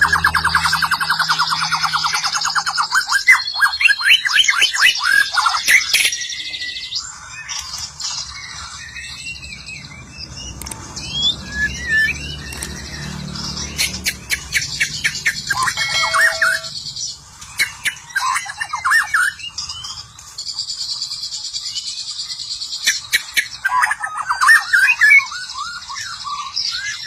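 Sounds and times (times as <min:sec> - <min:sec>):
bird singing whistled phrases: 0:00.0 - 0:07.5, 0:08.5 - 0:13.1, 0:13.7 - 0:16.8, 0:17.5 - 0:19.9, 0:21.6 - 0:27.0
high-pitched bird chatter: 0:00.0 - 0:27.0
sharp bird clicks: 0:10.4 - 0:16.7.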